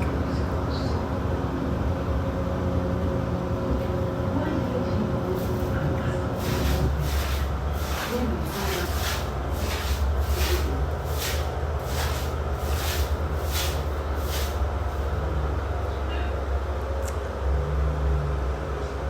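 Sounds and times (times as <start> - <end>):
washing machine spinning: 0.0 - 16.7.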